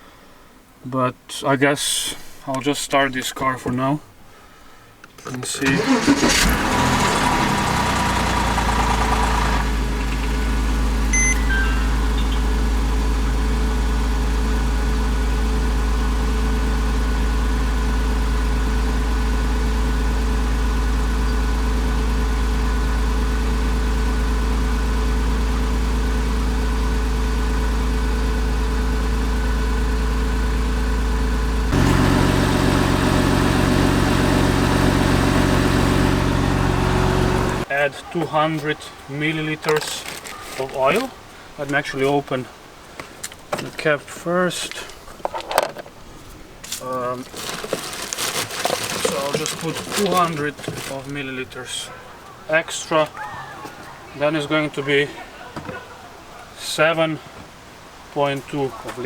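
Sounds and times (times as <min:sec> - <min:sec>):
car engine starting and idling: 0:05.1 - 0:37.8, 0:44.7 - 0:53.2.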